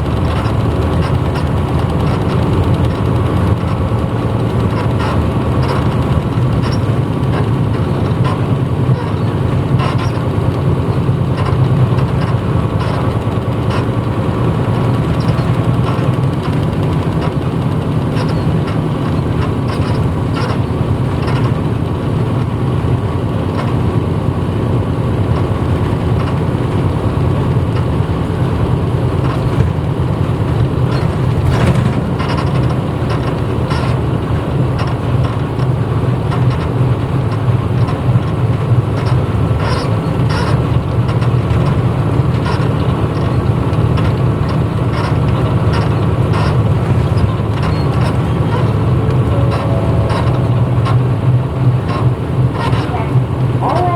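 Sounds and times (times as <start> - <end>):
bus diesel engine droning: 0.0 - 53.9
clicks and rattles: 29.2 - 34.1.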